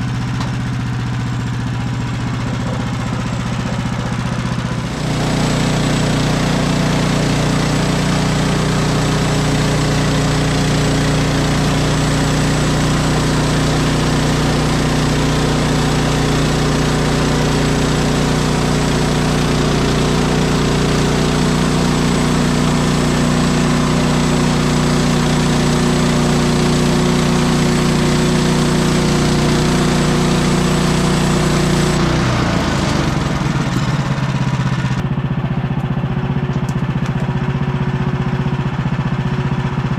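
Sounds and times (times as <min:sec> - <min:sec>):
gas engine running: 0:00.0 - 0:39.9
bandsaw blade cutting log: 0:02.2 - 0:33.4.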